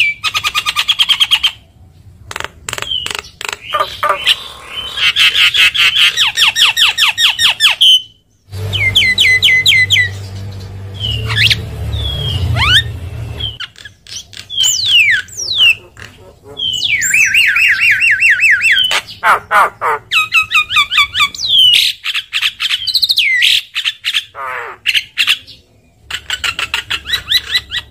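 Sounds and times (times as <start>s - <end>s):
low hum: 8.5s - 13.6s.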